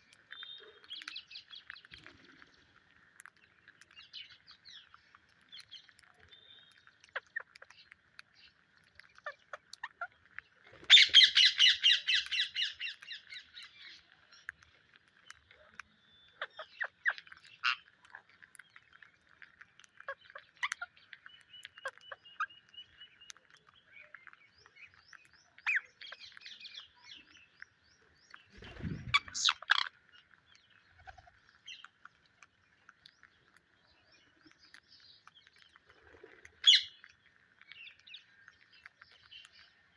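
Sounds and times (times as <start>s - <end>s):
faint bird chatter: 0.0s - 39.9s
parakeets screechy squawks: 10.9s - 12.8s, 28.7s - 29.9s, 36.6s - 36.9s
parakeet chirps: 10.9s - 14.0s, 16.2s - 18.2s, 25.5s - 27.3s, 28.4s - 30.0s, 36.6s - 37.0s.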